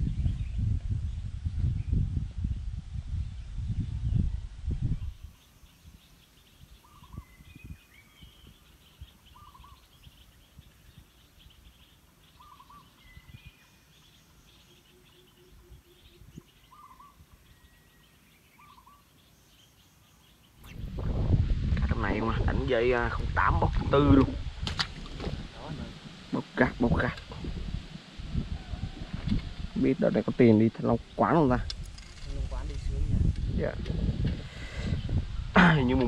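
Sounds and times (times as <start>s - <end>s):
faint high bird chirps: 3.9s - 20.9s
low run of quick bird notes: 20.4s - 32.6s
microphone handling bumps: 20.6s - 26.1s.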